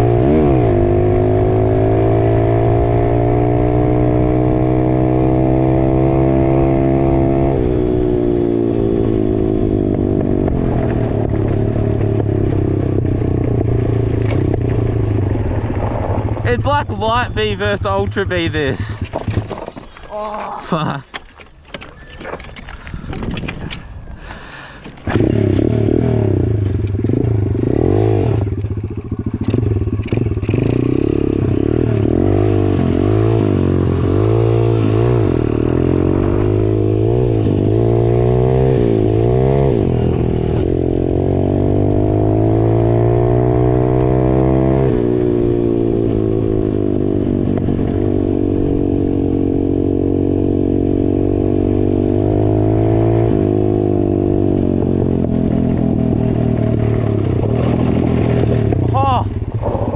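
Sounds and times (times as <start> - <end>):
dirt bike engine revving: 0.0 - 19.4, 25.0 - 59.9
bike rattling over rough ground: 10.0 - 25.7, 26.6 - 37.8, 54.2 - 59.9.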